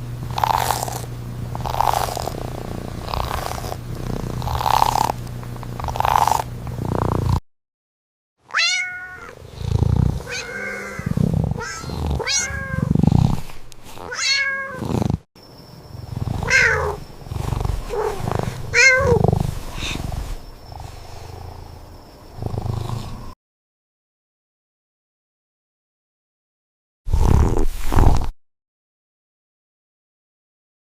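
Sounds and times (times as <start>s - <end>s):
cat purring: 0.3s - 7.4s, 9.1s - 15.3s, 15.9s - 23.4s, 27.1s - 28.3s
cat meowing: 8.5s - 9.4s, 10.2s - 12.9s, 14.0s - 14.8s, 16.4s - 17.0s, 17.8s - 19.4s.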